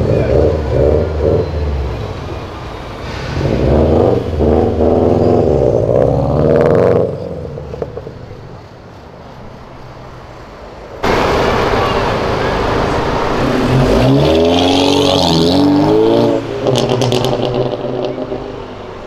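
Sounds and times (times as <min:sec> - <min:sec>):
car engine revving: 0:00.0 - 0:08.3, 0:11.0 - 0:19.0.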